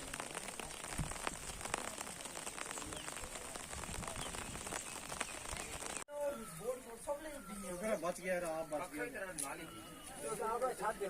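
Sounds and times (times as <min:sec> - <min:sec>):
heavy rain pattering: 0:00.0 - 0:06.1.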